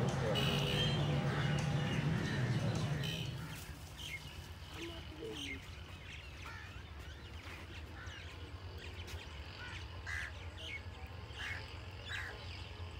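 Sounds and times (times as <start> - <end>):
low steady rumble: 0.0 - 7.2
birds chirping: 0.0 - 12.9.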